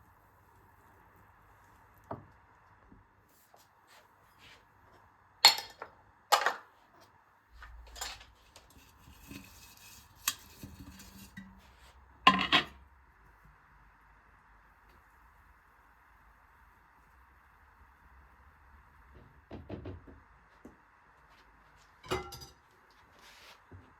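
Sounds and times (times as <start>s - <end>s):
dishes and cutlery clinking: 5.5s - 6.6s, 7.9s - 8.3s, 22.0s - 22.6s.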